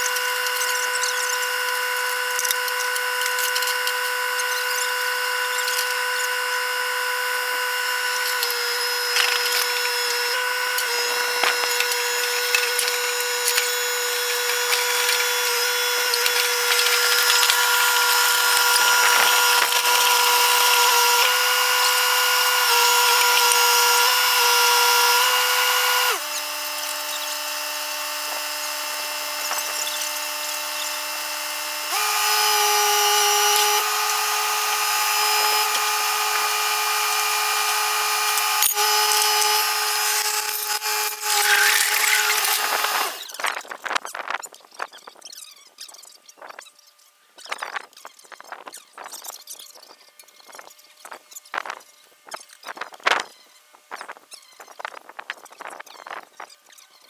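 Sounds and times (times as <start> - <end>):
machine whine: 0.0 - 43.7.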